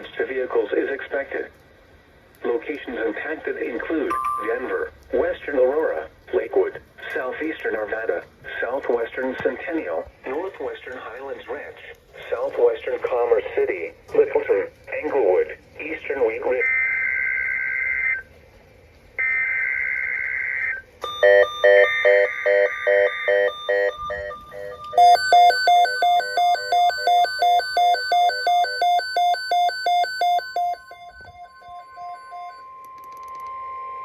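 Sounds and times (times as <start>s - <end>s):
steady warning alarm tone: 4.1s - 5.0s, 16.2s - 18.3s, 19.2s - 34.0s.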